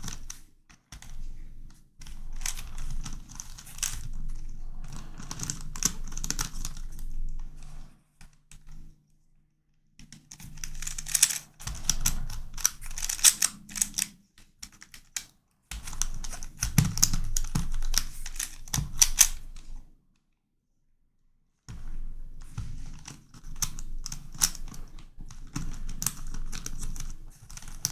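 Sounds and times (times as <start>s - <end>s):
plastic puzzle clicking: 2.4s - 4.0s, 10.4s - 14.1s, 16.0s - 19.4s.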